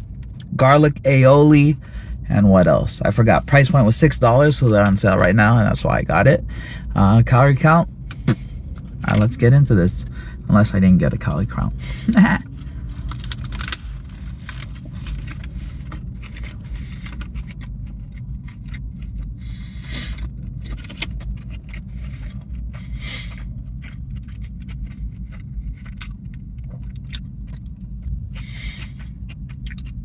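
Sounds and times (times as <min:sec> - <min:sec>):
steady low rumble: 0:00.0 - 0:30.0
paper wrapper crinkling: 0:12.1 - 0:16.7.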